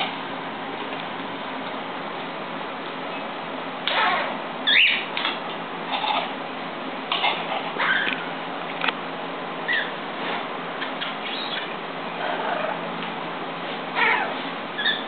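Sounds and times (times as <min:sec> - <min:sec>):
bird squawking: 0:03.9 - 0:05.1, 0:09.7 - 0:10.0, 0:10.8 - 0:11.7, 0:14.0 - 0:15.0
bird whistle: 0:04.6 - 0:05.1.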